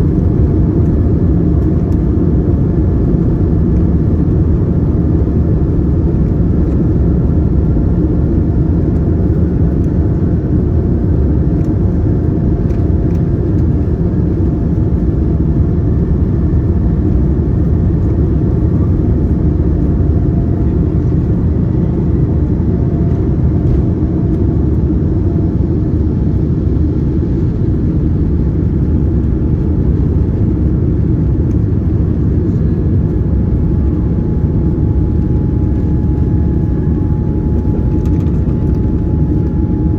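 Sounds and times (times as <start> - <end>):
jet engine cabin rumble: 0.0 - 39.9
faint steady whine: 11.6 - 39.9.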